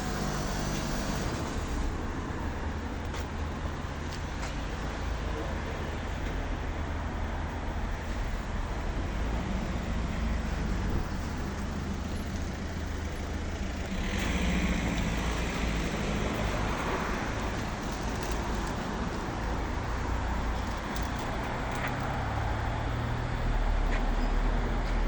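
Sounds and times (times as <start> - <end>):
road traffic rumble: 0.0 - 25.0
vehicle passing: 9.2 - 25.0.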